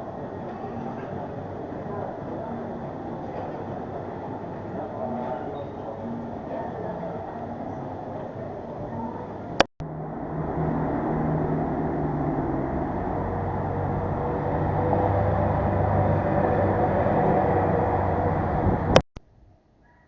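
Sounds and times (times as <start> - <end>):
motorcycle engine hum: 9.8 - 19.0
wind and road noise: 9.8 - 19.0.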